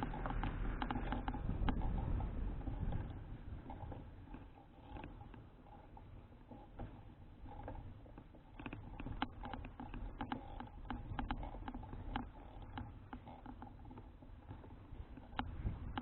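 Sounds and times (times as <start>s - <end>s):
bicycle rattling clicks: 0.0s - 5.4s
wind and road rumble: 0.0s - 16.0s.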